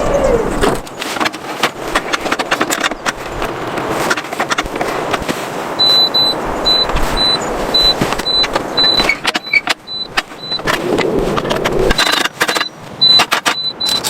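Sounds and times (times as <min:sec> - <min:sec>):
objects clicking and clattering: 0:00.6 - 0:07.1, 0:07.9 - 0:14.0
electronic warning beep: 0:05.8 - 0:14.0.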